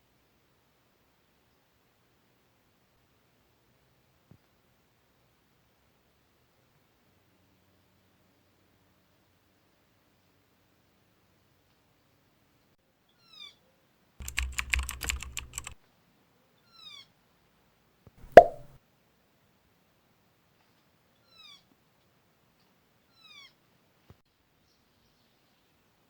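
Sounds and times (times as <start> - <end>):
rapid burst of clicks: 14.2 - 15.8
sharp loud knock: 18.2 - 18.7.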